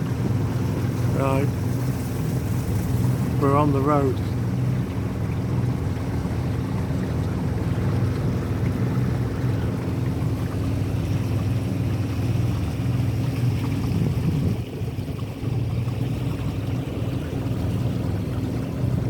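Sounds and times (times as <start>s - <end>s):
boat motor running: 0.0s - 19.0s
water rushing: 0.0s - 19.0s
wind noise: 13.7s - 15.0s.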